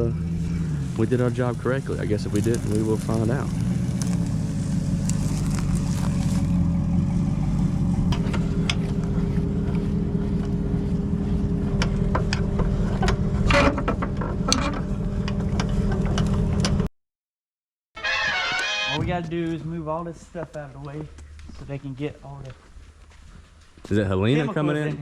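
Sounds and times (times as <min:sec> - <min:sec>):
vehicle engine running: 0:00.0 - 0:16.9.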